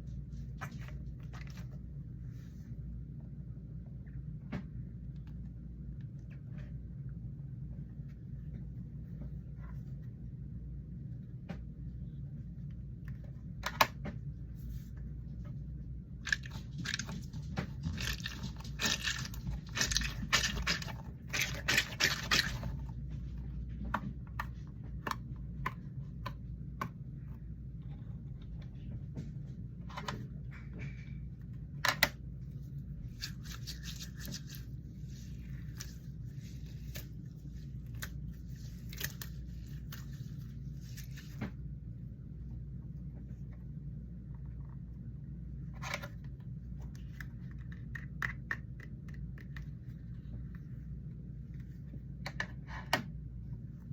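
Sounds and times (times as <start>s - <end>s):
steady low hum: 0.0s - 53.9s
fidget toys crackling and scratching: 16.2s - 23.0s.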